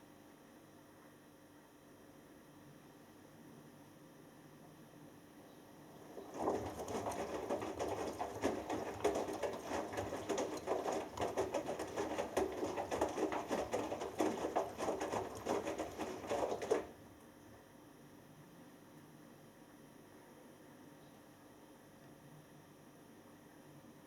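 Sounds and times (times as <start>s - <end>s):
faint washing machine hum: 0.0s - 24.0s
laundry tumbling in washing machine: 5.8s - 17.2s.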